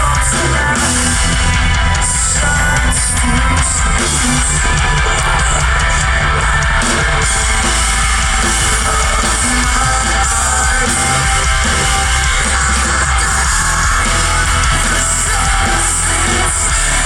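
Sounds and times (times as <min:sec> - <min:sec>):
distorted guitars: 0:00.0 - 0:17.0
heavy bass: 0:00.0 - 0:17.0
pounding drums: 0:00.0 - 0:17.0.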